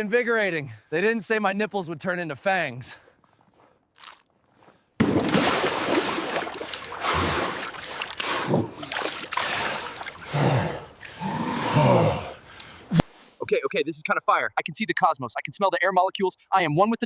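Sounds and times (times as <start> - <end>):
water sloshing and splashing: 5.0 - 11.2.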